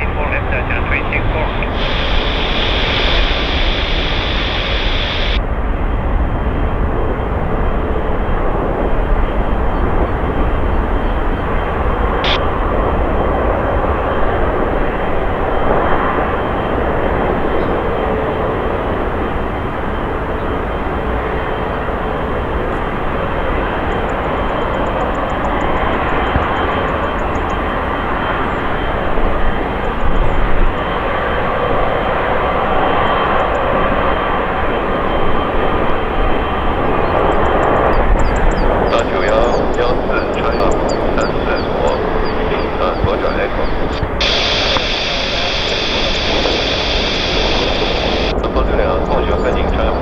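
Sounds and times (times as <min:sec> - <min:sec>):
jet engines rushing: 0:00.0 - 0:50.0
high whistle: 0:44.2 - 0:48.3.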